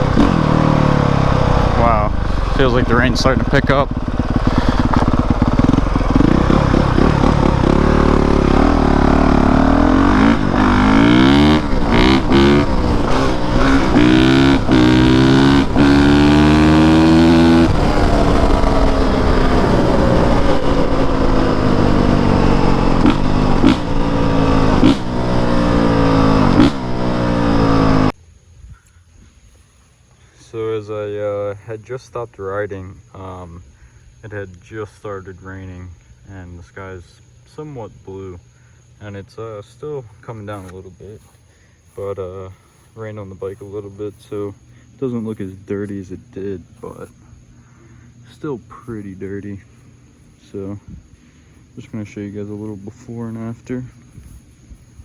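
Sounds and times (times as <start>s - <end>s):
motorcycle engine revving: 0.0s - 28.2s.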